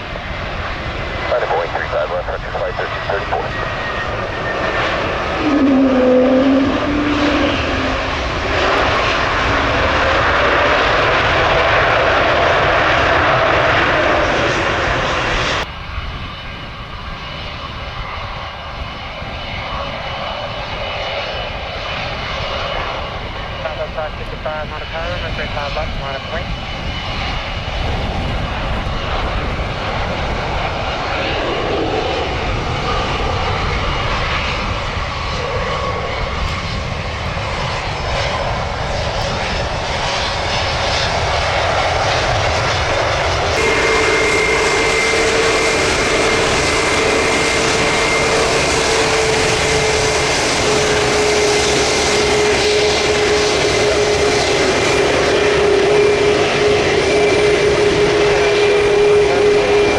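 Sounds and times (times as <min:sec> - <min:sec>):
jet engines running: 0:00.0 - 0:59.9
steady engine whine: 0:00.0 - 0:59.9
wind noise on microphone: 0:00.0 - 0:59.9.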